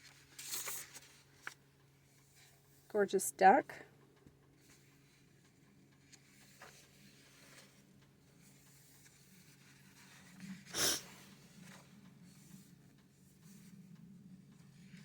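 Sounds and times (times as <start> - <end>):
book pages rustling: 0.0 - 2.5, 4.6 - 10.7
page turning swish: 0.4 - 1.6.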